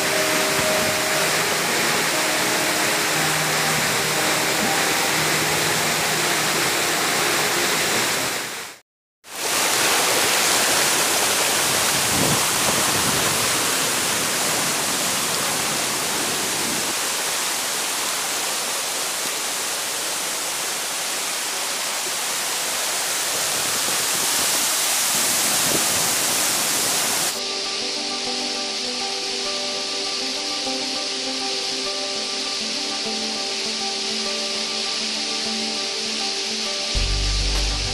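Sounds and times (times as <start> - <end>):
background music: 0.0 - 8.3, 27.4 - 37.9
waterfall roaring: 0.0 - 27.4.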